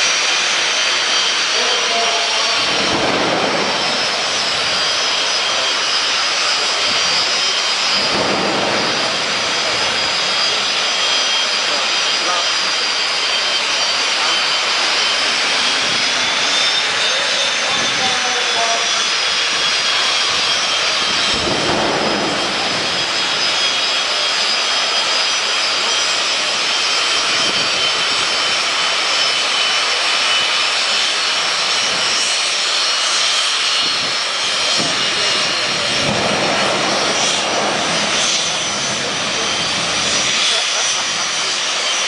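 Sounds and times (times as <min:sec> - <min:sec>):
high turbine whine: 0:00.0 - 0:42.0
jet engine roaring: 0:00.0 - 0:42.0.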